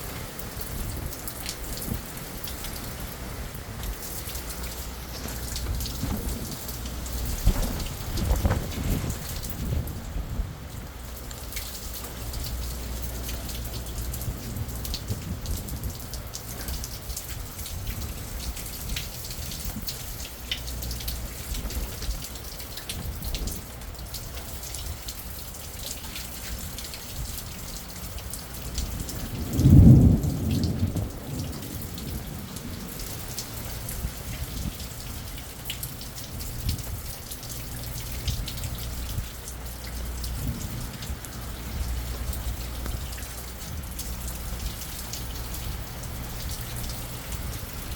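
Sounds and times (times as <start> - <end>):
steady rain: 0.0 - 47.9
thunder clap: 4.6 - 11.0, 28.8 - 34.8, 40.3 - 47.9.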